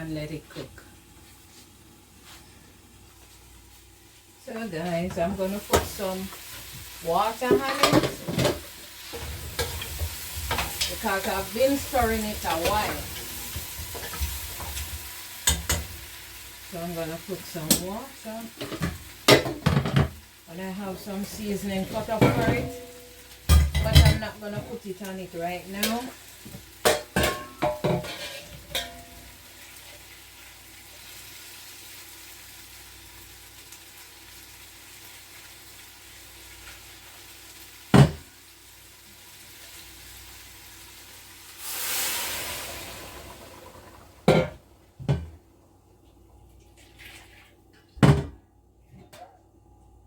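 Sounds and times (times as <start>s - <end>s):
meat sizzling in a hot pot: 5.4s - 44.7s
pot and lid clanking: 26.8s - 29.2s, 44.2s - 45.3s
loud hiss of water in hot pot: 39.0s - 44.3s.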